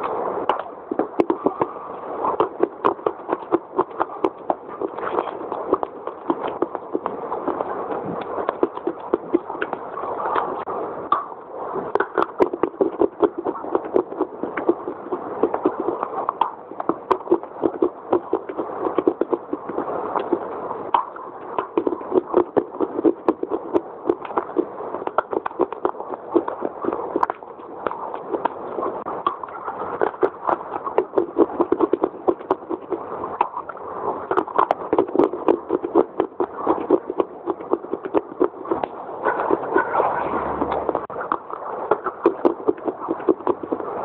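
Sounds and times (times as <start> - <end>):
crunchy chewing: 0.6 - 44.0.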